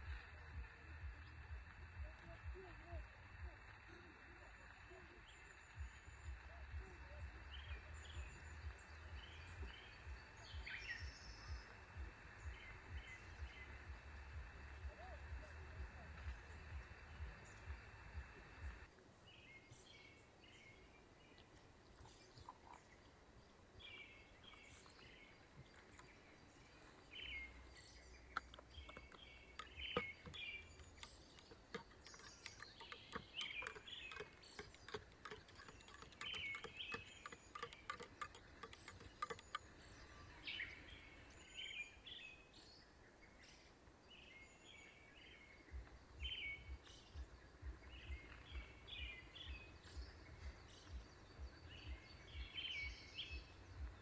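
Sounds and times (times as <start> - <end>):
faint birds chirping: 0.0 - 54.0
soft ticks: 28.3 - 40.0.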